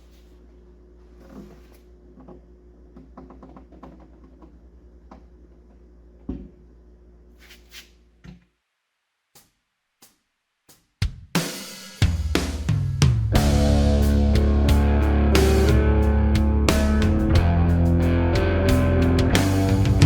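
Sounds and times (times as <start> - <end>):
steady low hum: 13.0 - 20.0.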